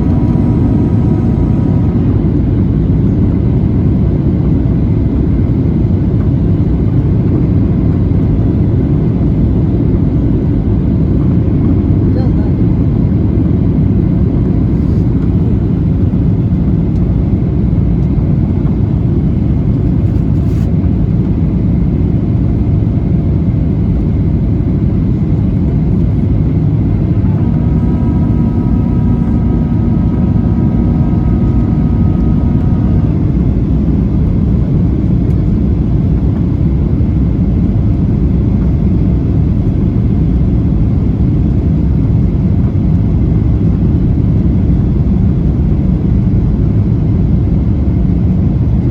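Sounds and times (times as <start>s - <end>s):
faint multi-tone whine: 0.0s - 4.6s, 25.1s - 36.6s
airplane cabin airflow and engine rumble: 0.0s - 48.9s.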